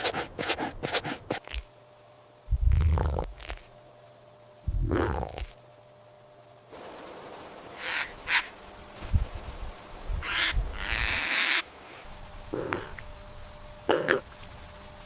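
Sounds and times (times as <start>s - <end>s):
harsh breathy animal calls: 0.0s - 1.6s, 12.5s - 13.0s.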